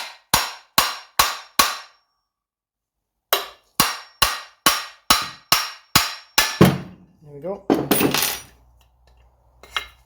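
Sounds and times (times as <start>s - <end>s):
hammer striking metal: 0.0s - 2.0s, 3.3s - 7.0s.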